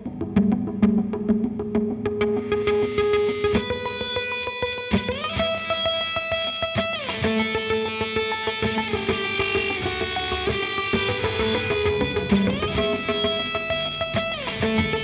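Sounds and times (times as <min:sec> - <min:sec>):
electric guitar sliding note: 0:09.1 - 0:15.0
steady percussive beat: 0:10.8 - 0:15.0.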